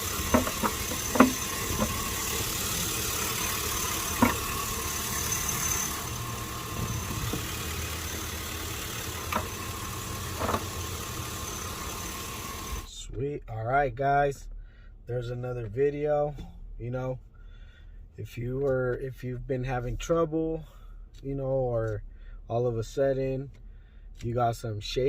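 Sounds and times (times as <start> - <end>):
car engine idling: 0.0 - 12.9.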